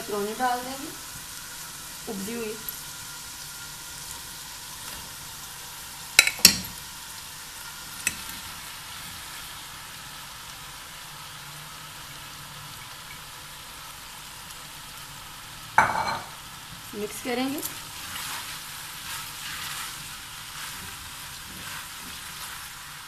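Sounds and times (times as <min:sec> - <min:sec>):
food sizzling in a pot: 0:00.0 - 0:23.0
sharp knocks on a pot: 0:15.8 - 0:16.3.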